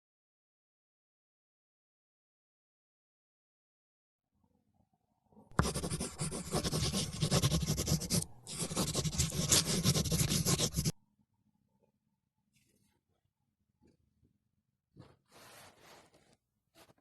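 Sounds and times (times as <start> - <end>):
oil pastel scratching on paper: 5.5 - 11.0.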